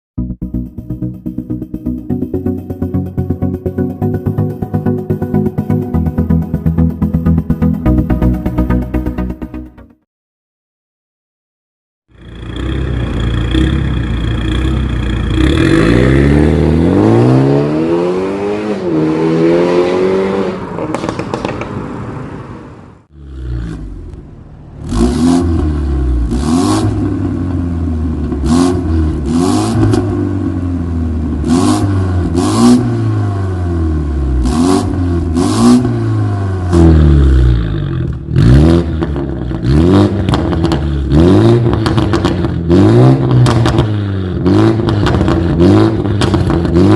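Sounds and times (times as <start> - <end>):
car engine revving: 12.2 - 46.9.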